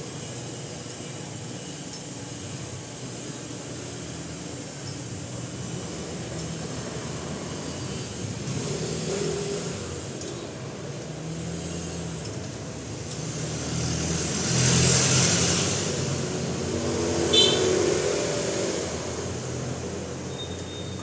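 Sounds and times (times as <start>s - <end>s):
vehicle engine passing: 11.2s - 20.3s.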